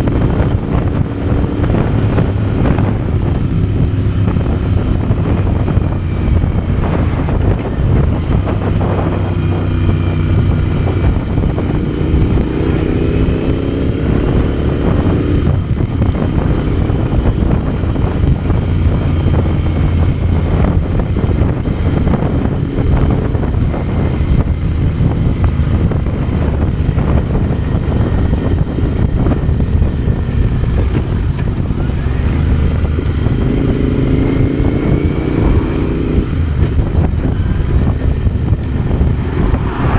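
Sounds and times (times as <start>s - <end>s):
motorcycle engine revving: 0.0s - 39.9s
wind noise on microphone: 0.0s - 39.9s.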